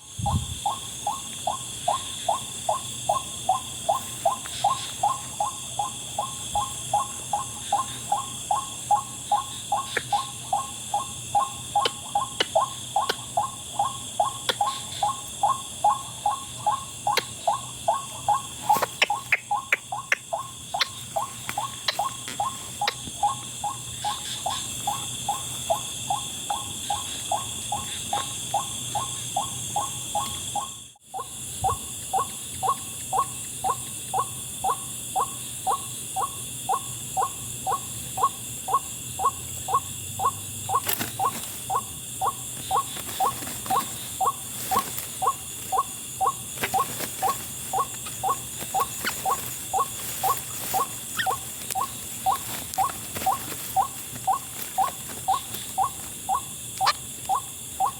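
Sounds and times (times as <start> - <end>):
night insects chirring: 0.0 - 57.9
waterhen calling: 37.2 - 57.9.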